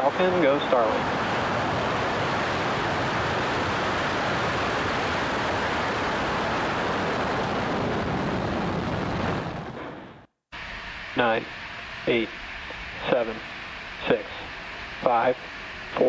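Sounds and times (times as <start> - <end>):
rocket engines rushing: 0.0 - 16.0.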